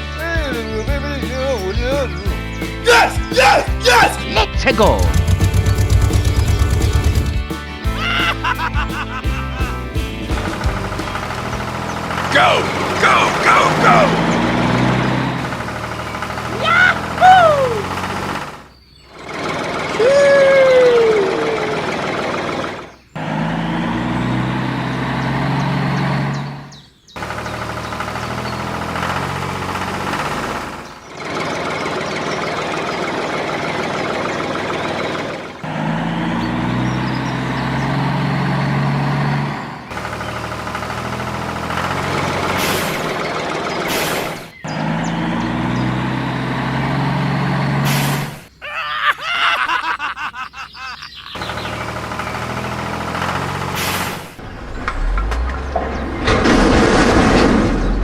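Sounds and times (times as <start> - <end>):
vehicle engine running: 0.0 - 48.6, 51.0 - 58.0
short uneven noise: 51.8 - 58.0.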